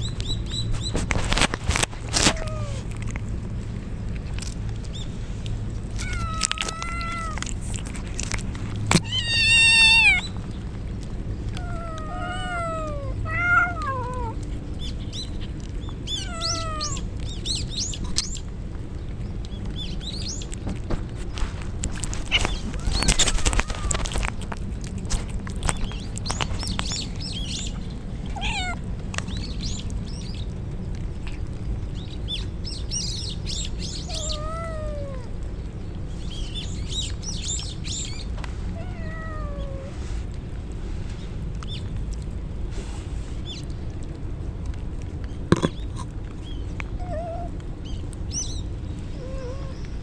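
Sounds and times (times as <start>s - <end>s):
low background noise: 0.0s - 50.0s
steady low rumble: 0.0s - 50.0s
cats meowing: 2.2s - 2.9s, 5.9s - 8.0s, 9.0s - 10.4s, 11.5s - 14.4s, 16.0s - 17.1s, 22.0s - 25.0s, 28.2s - 28.8s, 33.8s - 35.4s, 38.7s - 40.0s, 46.9s - 47.6s, 49.1s - 49.9s.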